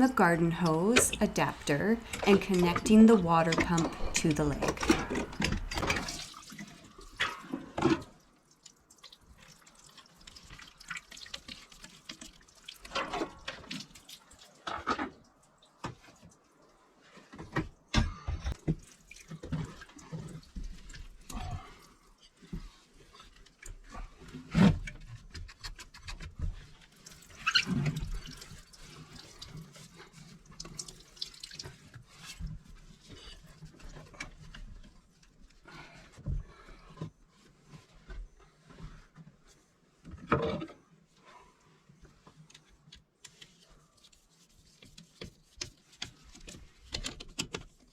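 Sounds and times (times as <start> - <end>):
water running and dripping: 0.0 - 7.2, 8.3 - 14.6, 18.6 - 22.0, 26.9 - 32.4.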